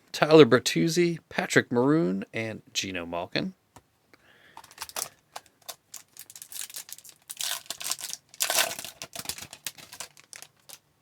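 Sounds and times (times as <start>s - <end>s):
foil wrapper tearing and crinkling: 4.6s - 10.8s.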